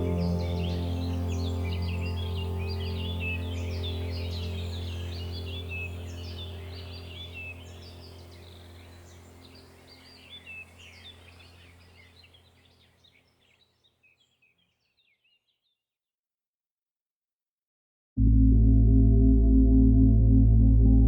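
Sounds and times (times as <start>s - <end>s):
low steady hum: 0.0s - 12.2s
small birds chirping: 0.0s - 15.8s.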